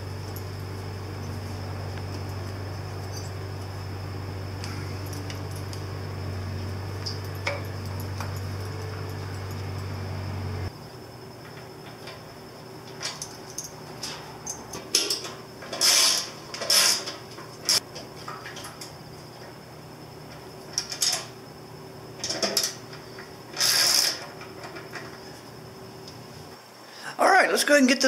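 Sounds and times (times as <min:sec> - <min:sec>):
metal parts and tools clinking: 0:02.1 - 0:03.4, 0:12.9 - 0:18.9.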